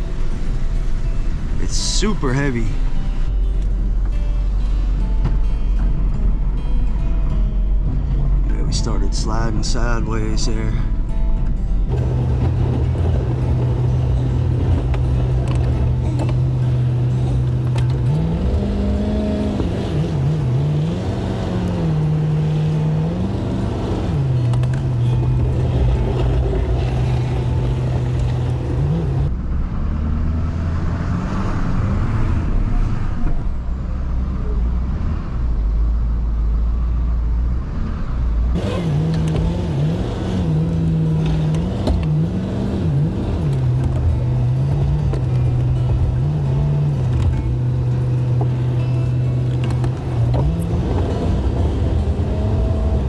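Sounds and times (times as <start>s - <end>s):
dull low rumble: 2.7s - 31.0s, 31.6s - 53.0s
plow pushing wet snow: 11.9s - 29.3s, 38.6s - 53.0s
truck engine revving: 11.9s - 33.0s, 38.5s - 53.0s.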